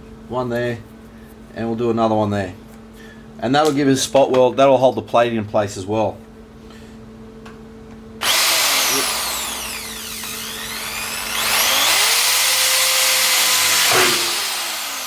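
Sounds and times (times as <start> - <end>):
electric drill drilling steel: 8.2 - 15.0.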